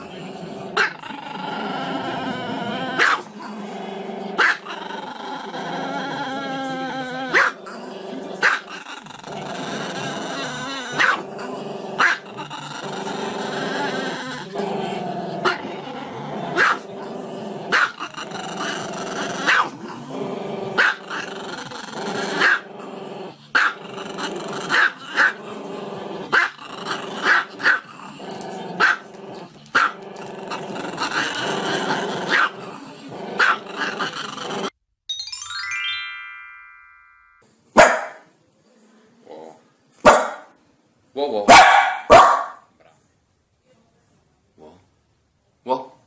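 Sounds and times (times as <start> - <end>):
dog barking: 3.0 - 3.3, 4.4 - 4.7, 7.3 - 7.6, 8.4 - 8.6, 11.0 - 11.2, 12.0 - 12.2, 16.6 - 16.8, 17.7 - 18.0, 19.5 - 19.7, 23.6 - 23.8, 28.8 - 29.0, 32.3 - 32.5, 33.4 - 33.6, 37.8 - 38.3, 40.0 - 40.5, 41.5 - 42.7
background music: 35.1 - 37.4
rising chime: 35.1 - 37.4.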